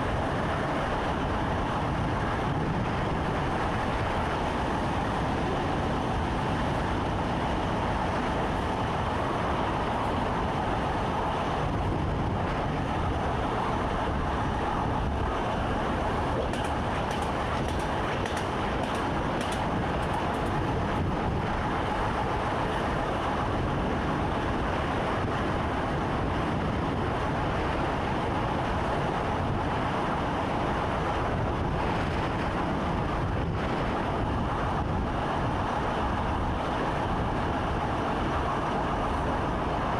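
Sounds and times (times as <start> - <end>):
train wheels rumbling: 0.0 - 25.5.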